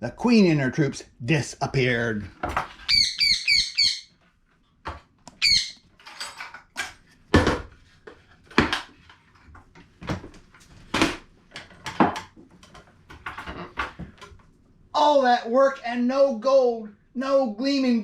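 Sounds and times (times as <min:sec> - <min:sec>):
objects knocking and clattering: 0:02.3 - 0:02.9, 0:04.8 - 0:05.2, 0:05.9 - 0:14.6.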